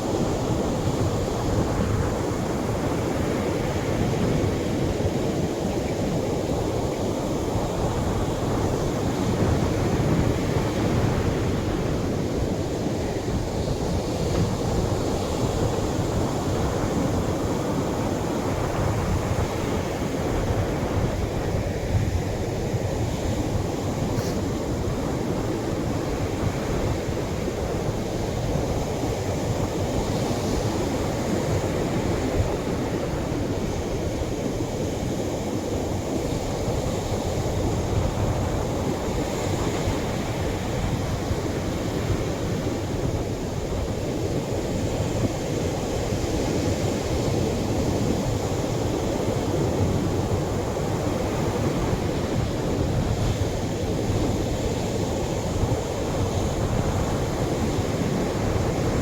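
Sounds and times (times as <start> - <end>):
surf washing onto a beach: 0.0 - 59.0.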